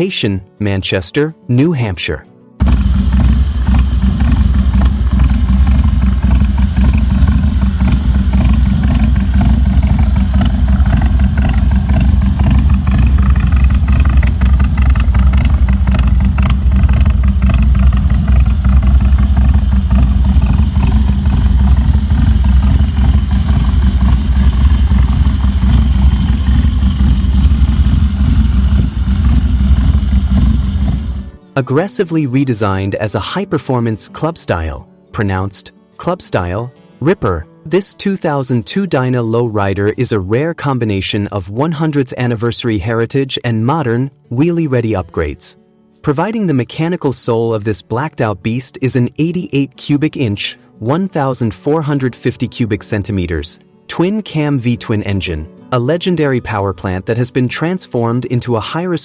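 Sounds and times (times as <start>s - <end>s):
motorcycle engine running loudly: 2.6s - 31.4s.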